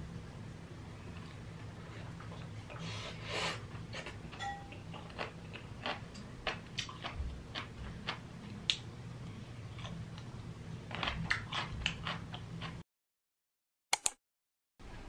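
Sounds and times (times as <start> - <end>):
low steady hum: 0.0 - 12.8
crunchy chewing: 3.7 - 8.3, 10.9 - 12.8.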